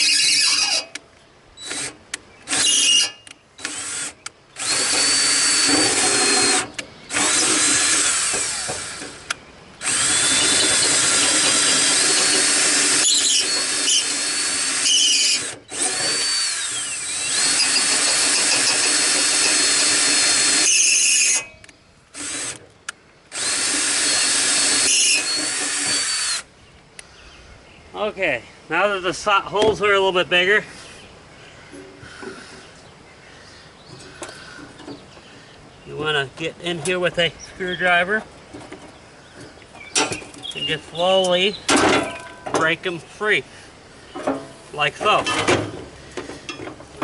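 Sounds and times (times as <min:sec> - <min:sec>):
power drill whining: 0:00.0 - 0:01.0, 0:01.6 - 0:22.6, 0:23.3 - 0:26.5.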